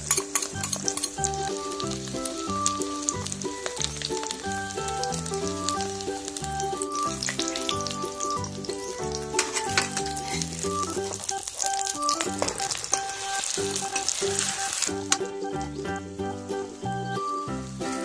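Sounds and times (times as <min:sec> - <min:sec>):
background music: 0:00.0 - 0:18.0
omelet sizzling in hot oil: 0:00.0 - 0:18.0.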